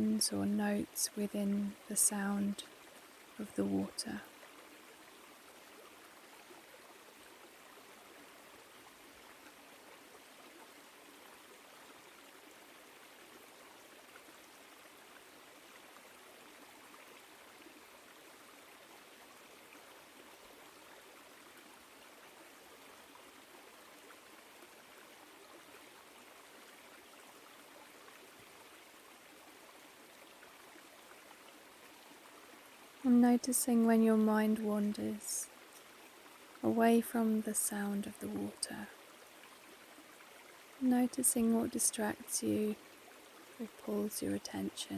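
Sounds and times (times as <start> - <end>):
stream flowing over rocks: 0.0 - 44.9.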